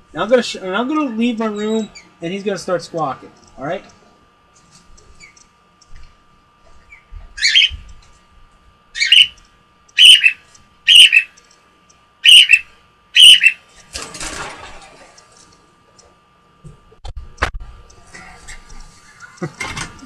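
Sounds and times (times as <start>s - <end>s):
cockatiel squawking: 7.4s - 7.8s, 9.0s - 9.4s, 10.0s - 11.3s, 12.2s - 12.6s, 13.2s - 13.6s.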